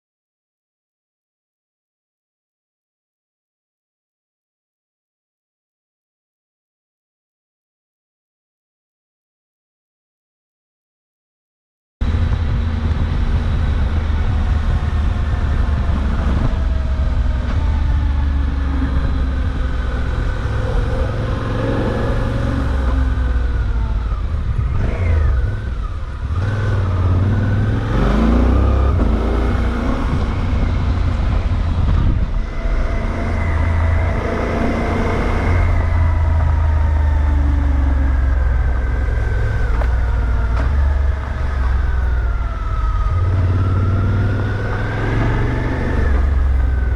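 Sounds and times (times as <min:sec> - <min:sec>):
motorcycle engine accelerating: 0:12.0 - 0:46.9
wind rumble on microphone: 0:12.0 - 0:46.9.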